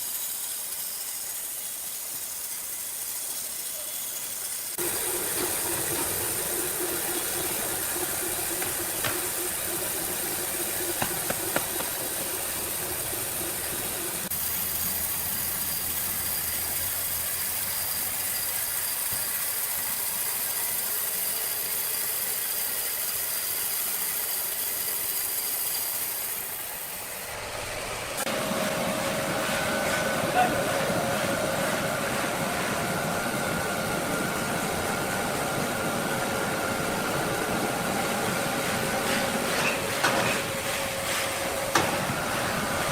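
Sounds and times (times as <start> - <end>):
sawmill machinery running: 0.0 - 42.9
motor hum with whine: 4.8 - 20.9, 27.0 - 42.9.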